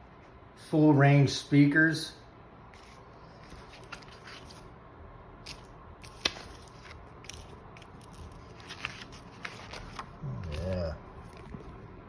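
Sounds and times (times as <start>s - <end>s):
packaging clicks and rustles: 5.5s - 11.8s.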